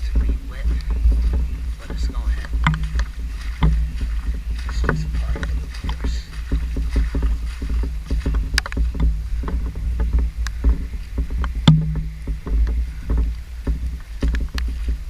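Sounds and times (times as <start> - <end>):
footsteps wading through floodwater: 0.0 - 15.0
steady low rumble: 0.0 - 15.0
water sloshing and splashing: 0.0 - 15.0
sharp knock with low hum: 11.6 - 13.8.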